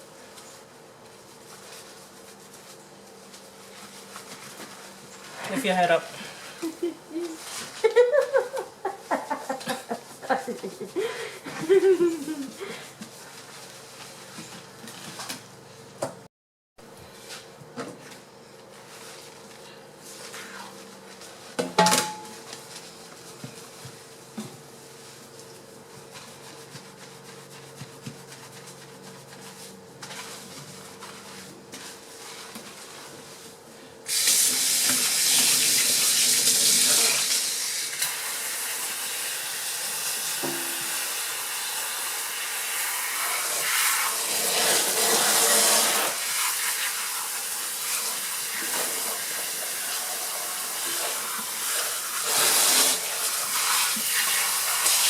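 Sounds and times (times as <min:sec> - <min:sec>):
tap water running and splashing: 0:34.1 - 0:55.0.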